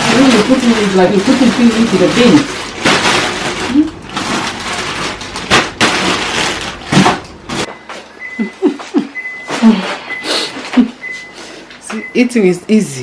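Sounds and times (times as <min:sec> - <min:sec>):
packaging rustling and knocking: 0:00.0 - 0:07.7
high appliance beep: 0:07.6 - 0:13.0.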